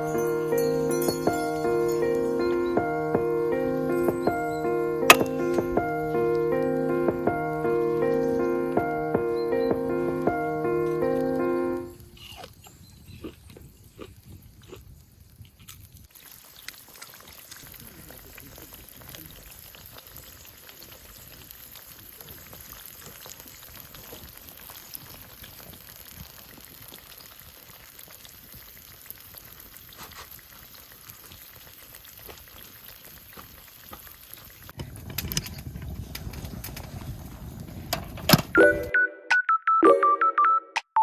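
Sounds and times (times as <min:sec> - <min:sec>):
food sizzling in a pan: 0:16.1 - 0:34.8.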